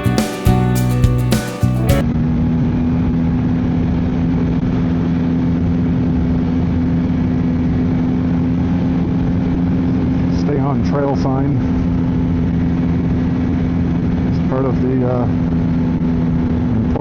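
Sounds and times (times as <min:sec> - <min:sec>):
strummed guitar music: 0:00.0 - 0:02.0.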